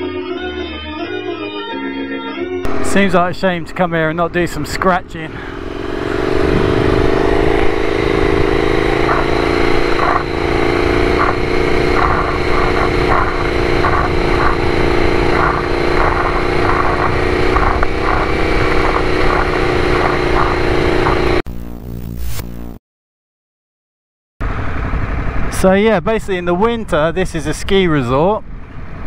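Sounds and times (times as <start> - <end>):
motorcycle engine running: 2.7 - 22.8
wind rush on microphone: 5.3 - 21.4, 24.4 - 29.0.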